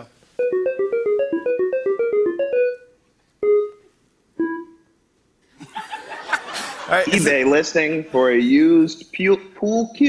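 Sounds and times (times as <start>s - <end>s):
keyboard jingle: 0.4s - 4.8s.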